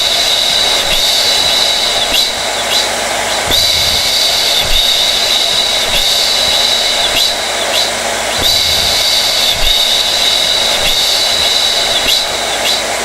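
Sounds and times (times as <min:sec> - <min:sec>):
hair dryer running: 0:00.0 - 0:13.0.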